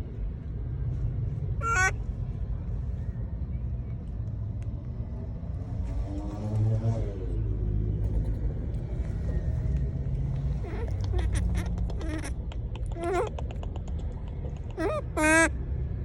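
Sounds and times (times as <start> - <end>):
steady low rumble: 0.0 - 16.0
monkeys calling: 1.6 - 2.0, 10.5 - 15.6.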